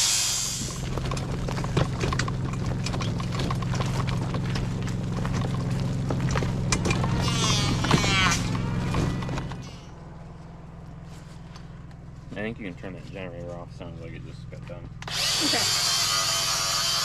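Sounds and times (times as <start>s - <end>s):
power tool hissing: 0.0s - 0.9s, 15.0s - 17.0s
portable generator humming: 0.0s - 17.0s.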